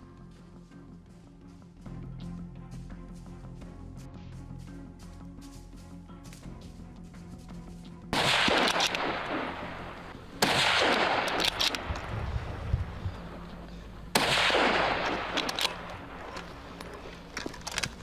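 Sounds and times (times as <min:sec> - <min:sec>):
background music: 0:00.0 - 0:18.0
rifle shots with echo: 0:08.1 - 0:16.7.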